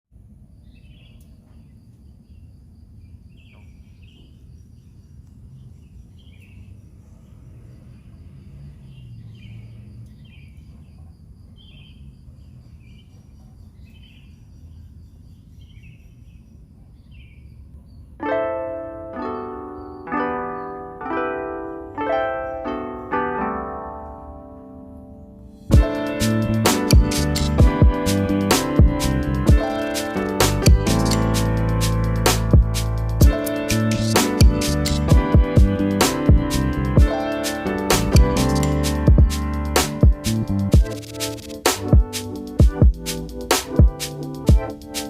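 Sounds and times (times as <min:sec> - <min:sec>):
bird chirping: 0:00.4 - 0:18.2, 0:19.2 - 0:21.0, 0:25.5 - 0:45.0
plucked harp-like music: 0:18.2 - 0:40.8
low rumble: 0:30.5 - 0:37.1.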